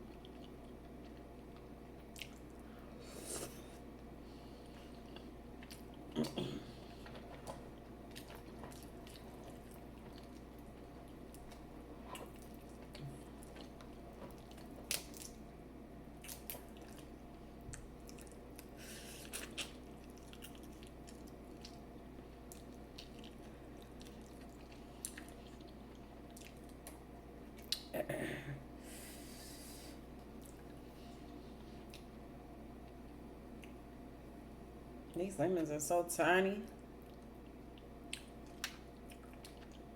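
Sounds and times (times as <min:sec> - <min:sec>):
person chewing food: 0:00.0 - 0:15.5, 0:16.1 - 0:27.9, 0:30.0 - 0:32.2, 0:37.0 - 0:39.9
steady low hum: 0:00.0 - 0:39.9.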